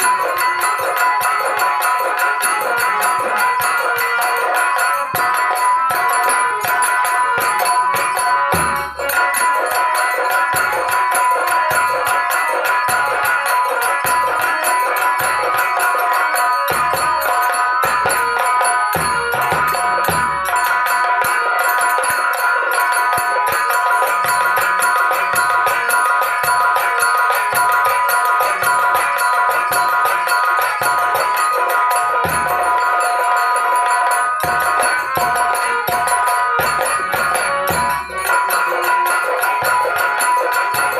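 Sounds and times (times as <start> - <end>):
held melodic tones: 0.0 - 40.9
metallic jingling percussion: 0.0 - 40.9
drum strokes: 3.0 - 21.4, 28.6 - 40.9.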